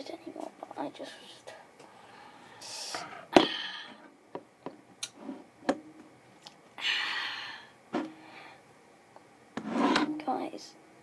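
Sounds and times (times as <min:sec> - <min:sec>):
breathy hiss: 0:01.4 - 0:04.1, 0:06.8 - 0:08.7.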